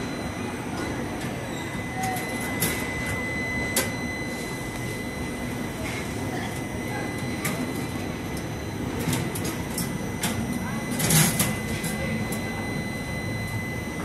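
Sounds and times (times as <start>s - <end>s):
faint voices: 5.2s - 14.0s.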